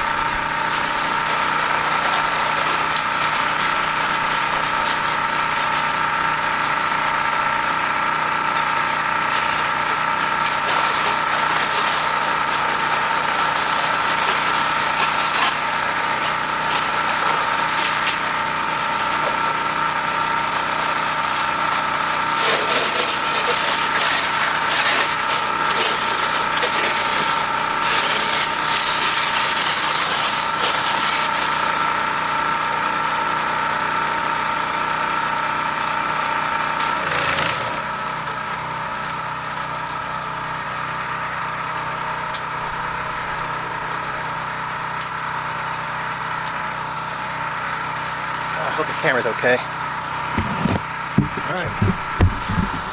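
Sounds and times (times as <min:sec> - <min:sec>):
pressure washer engine running: 0:00.0 - 0:52.9
high-pressure water spray hiss: 0:00.5 - 0:06.7, 0:10.4 - 0:19.3, 0:20.4 - 0:31.9.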